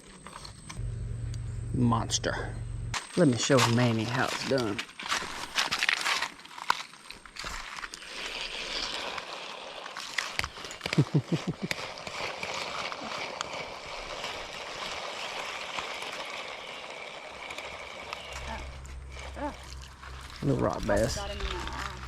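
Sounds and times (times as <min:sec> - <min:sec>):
low sweeping sounds: 0:00.8 - 0:03.0
creek water gurgling: 0:11.1 - 0:19.2.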